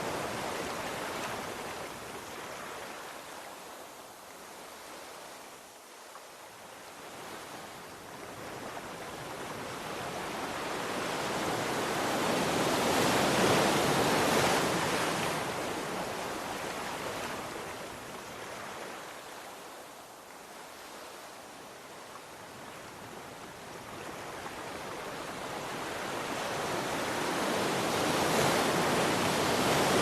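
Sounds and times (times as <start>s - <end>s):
sea wave surging and washing back: 8.7s - 20.0s, 23.4s - 30.0s.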